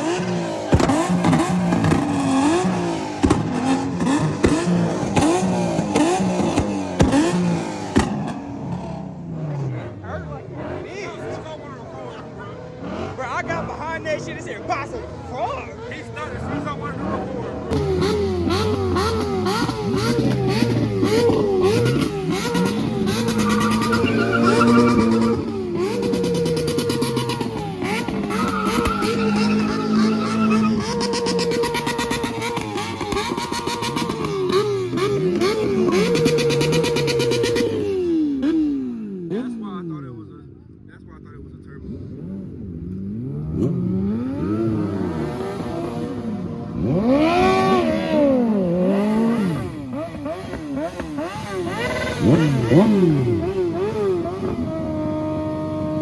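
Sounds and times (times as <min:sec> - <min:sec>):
car engine revving: 0:00.0 - 0:56.0
exhaust pops and bangs: 0:00.7 - 0:08.4.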